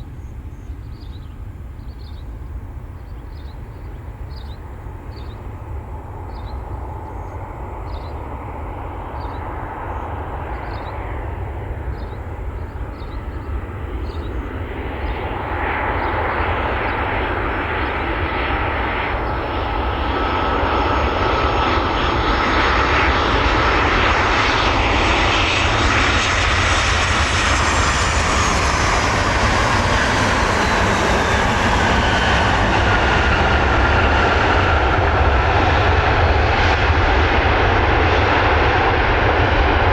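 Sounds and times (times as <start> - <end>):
jet airliner passing: 0.1 - 39.9
high engine whine: 25.4 - 39.9.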